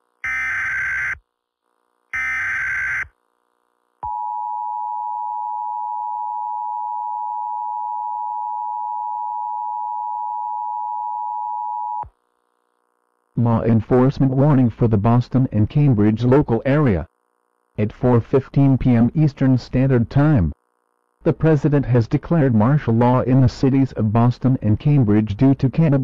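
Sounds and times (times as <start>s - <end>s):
steady two-tone alert signal: 2.2s - 3.1s.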